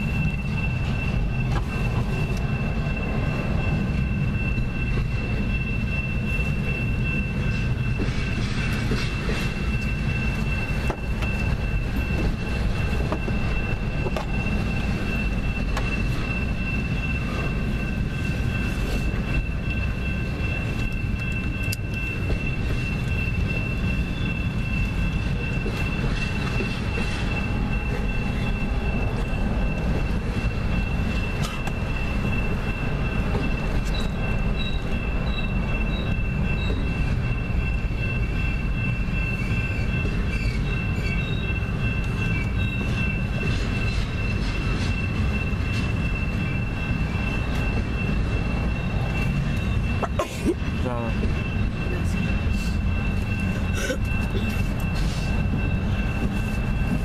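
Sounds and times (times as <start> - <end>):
steady high-pitched tone: 0.0 - 57.0
train wheels rumbling on rail: 0.0 - 57.0.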